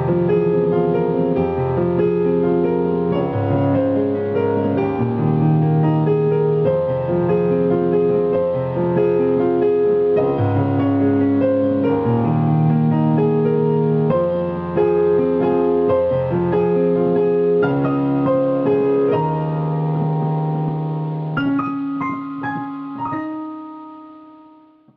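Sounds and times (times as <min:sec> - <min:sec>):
piano chords over bass notes: 0:00.0 - 0:24.9.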